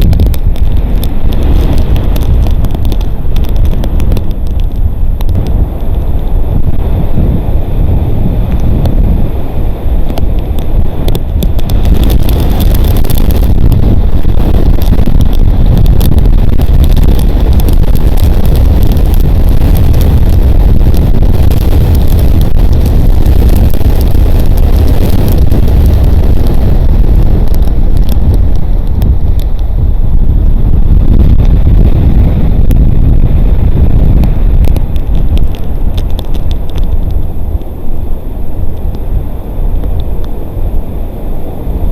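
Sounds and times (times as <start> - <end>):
rain ticking on camera: 0.0 - 40.8
wind buffeting microphone: 0.0 - 41.9.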